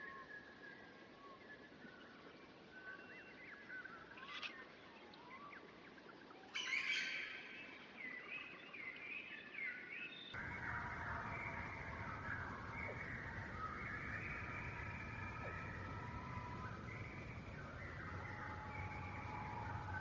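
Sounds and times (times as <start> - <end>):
birds chattering calls: 10.4 - 20.0
birds whistling and chirping: 10.4 - 20.0.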